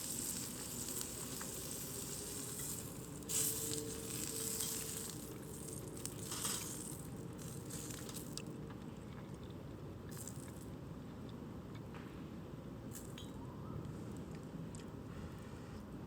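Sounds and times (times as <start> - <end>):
campfire crackling and popping: 0.0 - 8.6
low steady fire rumble: 0.0 - 11.7.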